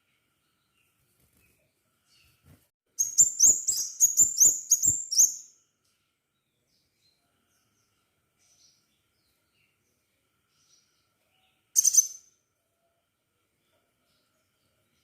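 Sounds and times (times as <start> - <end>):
sunbird sharp high chirps: 3.0 - 5.6, 11.8 - 12.4.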